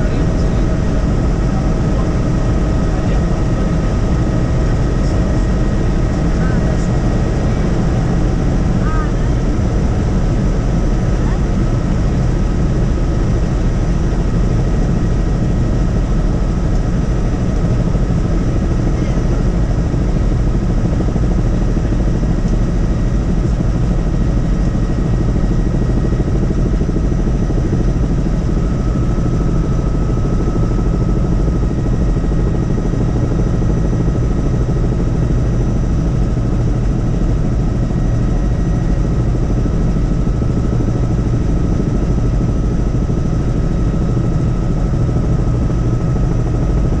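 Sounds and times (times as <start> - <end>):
helicopter engine and rotor drone: 0.0 - 47.0.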